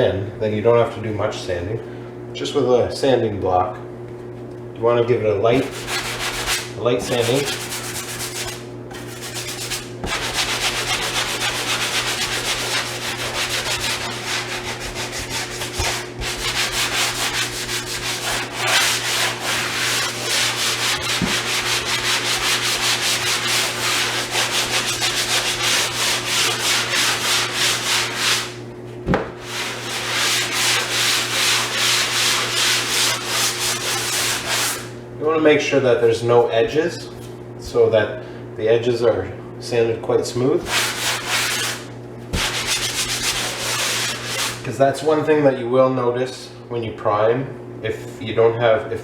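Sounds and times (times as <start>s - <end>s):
sanding block scratching drywall: 5.6s - 28.6s, 29.4s - 35.0s, 40.6s - 44.7s.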